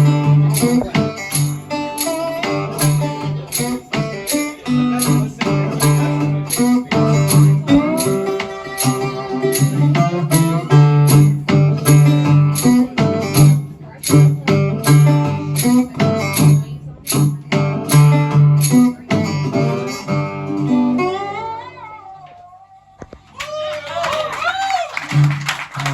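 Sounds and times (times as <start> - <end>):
low bass: 0.0 - 21.3
guitar strumming chords: 0.0 - 22.2.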